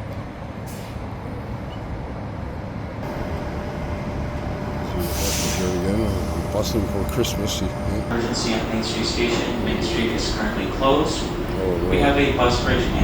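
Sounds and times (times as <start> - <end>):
train rumbling by: 0.0 - 13.0
steady tone: 3.0 - 13.0.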